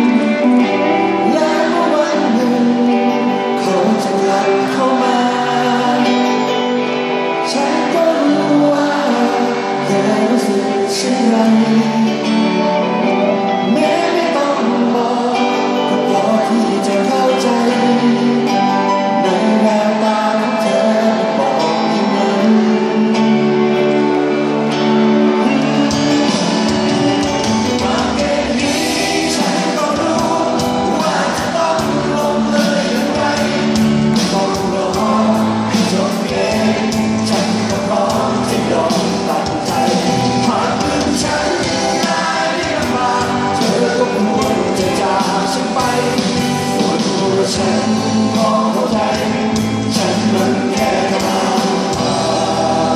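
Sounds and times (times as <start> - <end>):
guitar accompaniment: 0.0 - 52.9
person singing: 0.0 - 52.9
bass and drums: 25.4 - 52.9.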